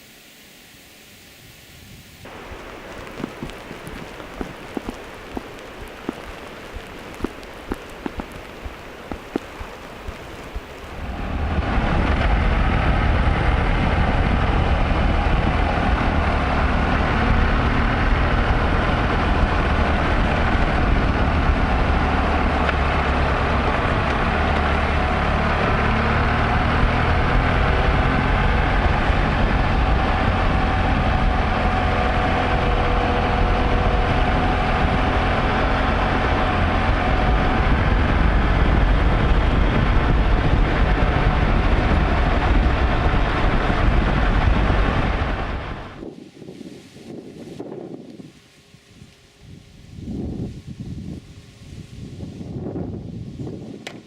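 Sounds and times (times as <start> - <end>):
motorcycle engine drone: 0.0 - 46.3
wind on microphone: 1.4 - 54.0.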